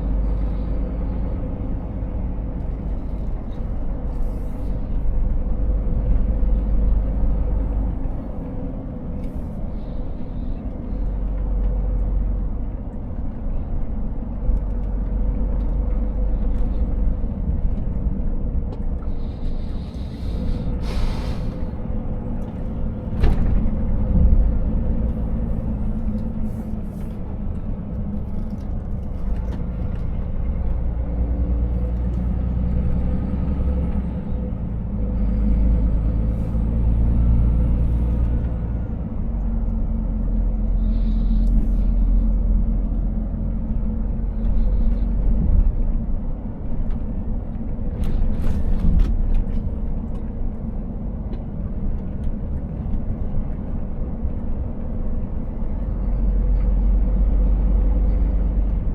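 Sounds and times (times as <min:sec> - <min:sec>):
truck engine rumble in cab: 0:00.0 - 0:58.9
air hiss: 0:20.8 - 0:21.6.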